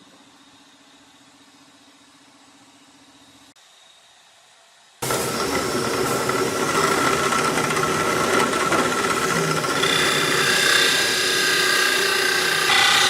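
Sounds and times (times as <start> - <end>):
angle grinder sanding wood: 5.0 - 13.0.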